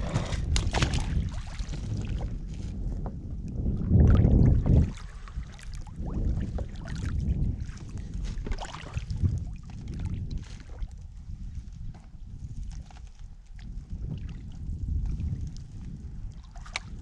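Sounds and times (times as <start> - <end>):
water splashes: 0.0 - 2.3, 4.0 - 10.9, 16.3 - 17.0
wind rumbling on microphone: 0.0 - 17.0.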